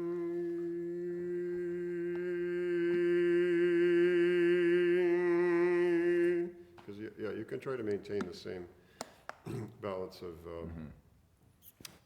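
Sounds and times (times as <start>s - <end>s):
person singing a long steady note: 0.0s - 6.6s.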